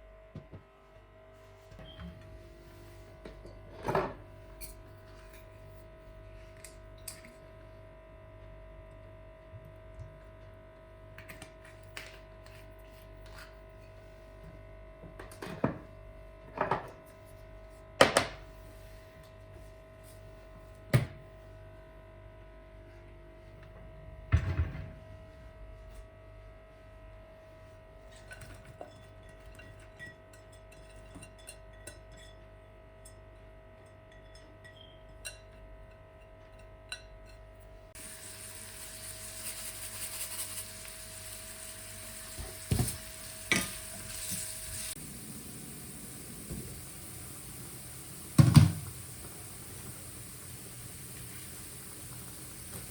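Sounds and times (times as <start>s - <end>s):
kitchen appliance humming: 38.0s - 52.9s
steady hiss: 38.0s - 52.9s
pots and pans clattering: 48.3s - 49.3s.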